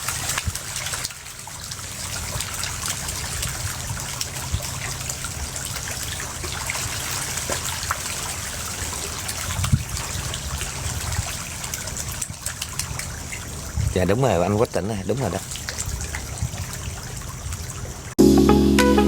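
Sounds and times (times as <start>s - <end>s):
water trickling: 0.0s - 18.2s.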